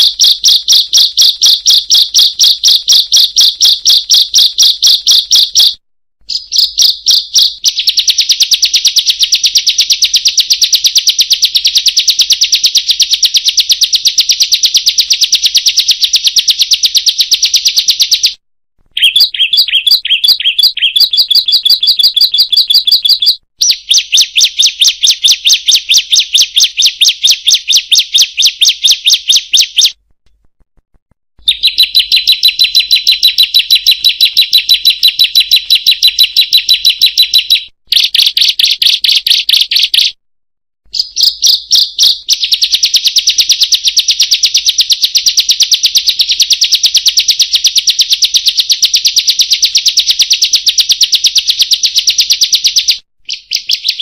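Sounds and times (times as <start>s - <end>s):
bird singing rapid sharp notes: 0.0s - 30.0s, 31.4s - 40.2s, 40.9s - 43.4s, 52.7s - 54.0s.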